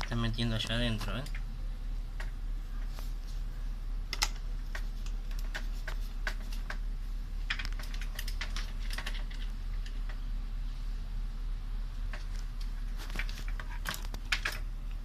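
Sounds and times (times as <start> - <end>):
steady low hum: 0.0 - 15.0
hands handling plastic fan parts: 4.1 - 10.2, 12.1 - 14.7.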